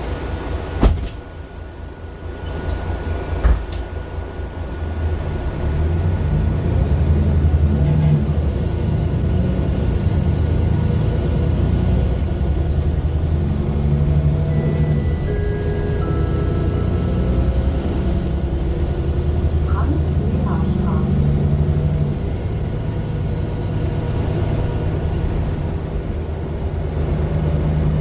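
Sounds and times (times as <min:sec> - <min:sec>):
bus diesel engine pulling away: 0:00.0 - 0:28.0
thump inside bus: 0:00.8 - 0:01.3, 0:03.4 - 0:03.9.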